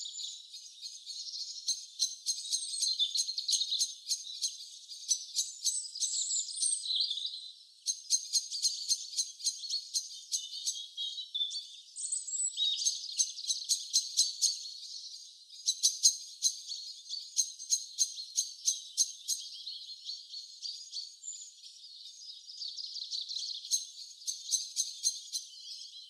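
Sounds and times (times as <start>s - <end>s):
rapid high bird chirps: 0.0s - 26.0s
whistled bird notes: 0.0s - 26.0s.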